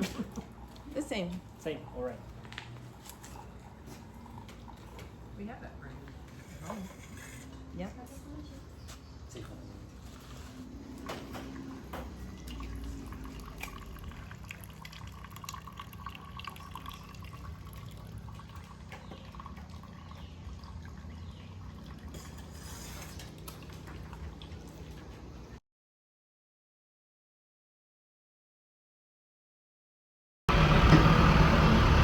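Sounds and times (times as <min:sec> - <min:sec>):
coffee pouring into cups: 0:00.0 - 0:07.7, 0:09.6 - 0:25.6
cups clinking: 0:03.0 - 0:05.3, 0:06.0 - 0:20.3.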